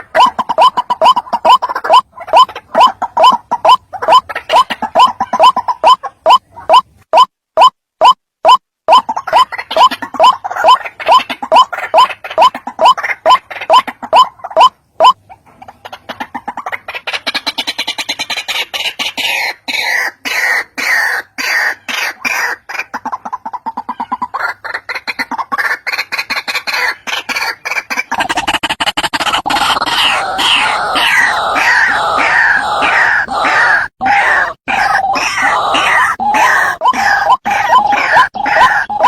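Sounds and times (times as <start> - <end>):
stuttering croaking notes: 0.0 - 16.9, 28.0 - 39.0
waterhen calling: 0.0 - 39.0.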